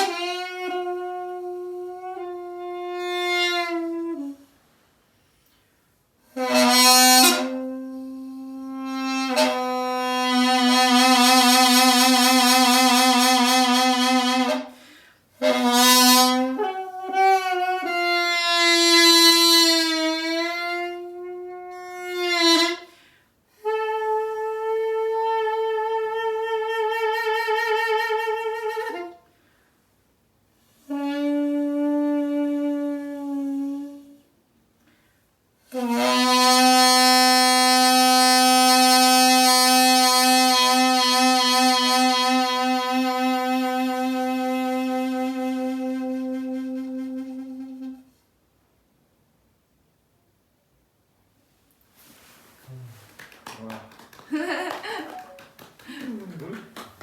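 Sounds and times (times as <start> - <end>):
double-reed pipe playing: 6.4 - 14.8, 15.4 - 22.8, 35.7 - 48.1.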